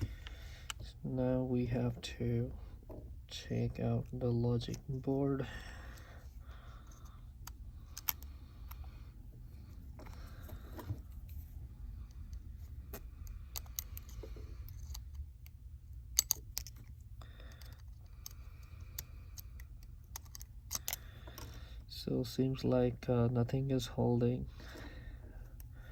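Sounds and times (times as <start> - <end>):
steady low hum: 0.0 - 25.9
repair tools clicking and tapping: 12.9 - 21.6.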